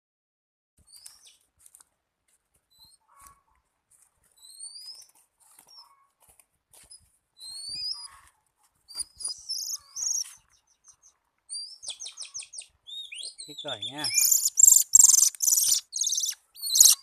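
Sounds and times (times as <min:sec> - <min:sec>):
bird chirps: 0:00.8 - 0:01.4, 0:02.7 - 0:03.4, 0:04.4 - 0:06.1, 0:06.9 - 0:08.3, 0:08.9 - 0:17.0
bird rising whistles: 0:12.9 - 0:17.0.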